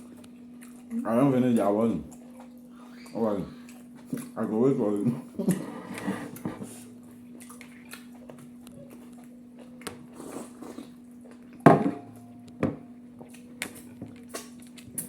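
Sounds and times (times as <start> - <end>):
steady low hum: 0.0 - 15.0
dishes clicking and knocking: 11.7 - 12.8.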